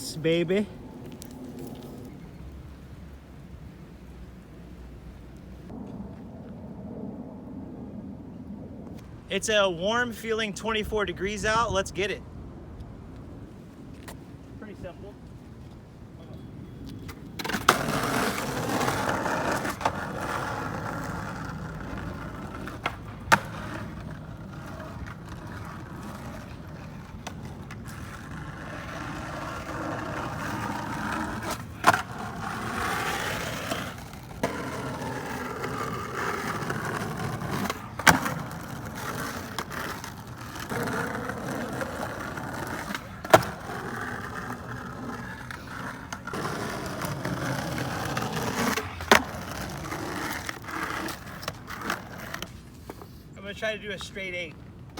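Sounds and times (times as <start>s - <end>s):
skateboard wheels rumbling: 0.0s - 9.2s, 15.2s - 53.6s
skateboard clacks: 16.9s - 53.1s.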